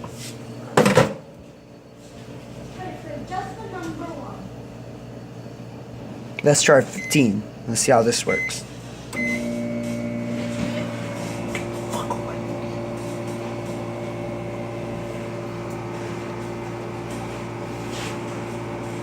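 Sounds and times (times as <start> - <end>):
microwave electrical hum: 0.0 - 19.0
microwave oven beep: 0.4 - 2.5, 6.5 - 7.4, 8.1 - 19.0.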